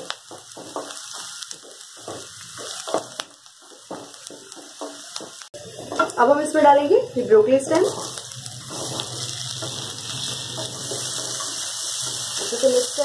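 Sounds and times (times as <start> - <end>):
onion sizzling in oil: 0.0 - 13.0
stirring scrapes: 7.9 - 12.8.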